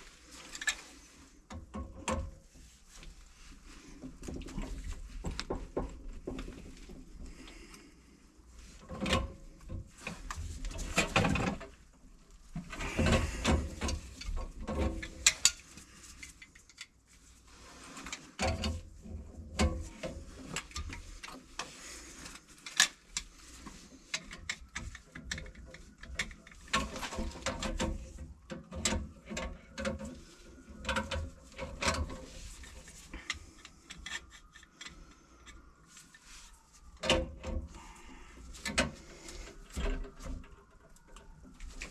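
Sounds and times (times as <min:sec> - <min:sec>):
tools knocking and rattling: 0:04.0 - 0:07.4, 0:08.9 - 0:11.8, 0:12.5 - 0:16.9, 0:18.4 - 0:21.7, 0:24.0 - 0:35.6.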